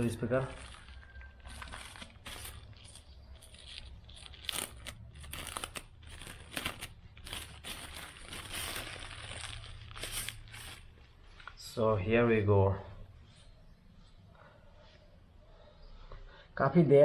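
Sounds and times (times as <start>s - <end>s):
packaging wrap crinkling: 0.0s - 11.6s.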